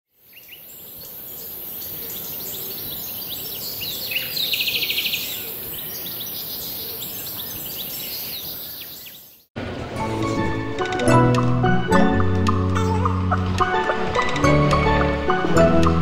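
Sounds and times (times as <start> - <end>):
birds chirping and calling: 0.3 - 9.4.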